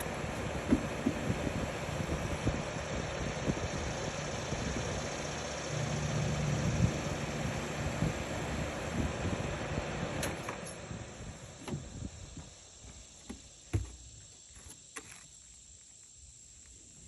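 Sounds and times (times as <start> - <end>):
air conditioner winding down: 0.0 - 12.1.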